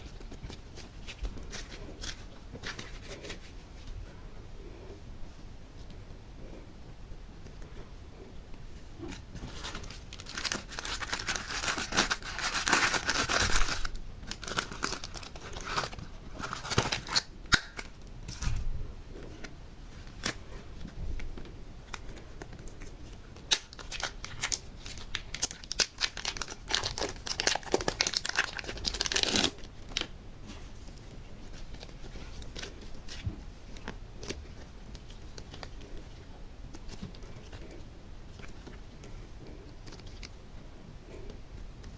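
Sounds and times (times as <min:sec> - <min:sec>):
material crinkling and tearing: 0:09.0 - 0:18.6, 0:19.3 - 0:40.4.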